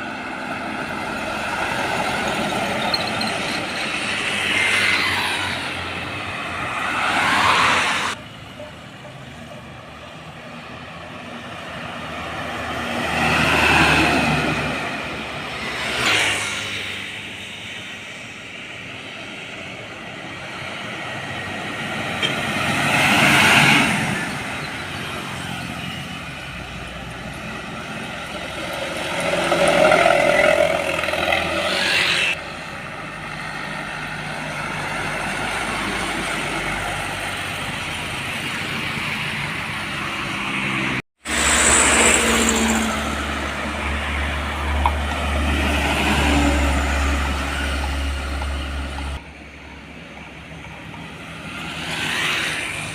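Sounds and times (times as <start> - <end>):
heavy road traffic passing: 0.0 - 52.9.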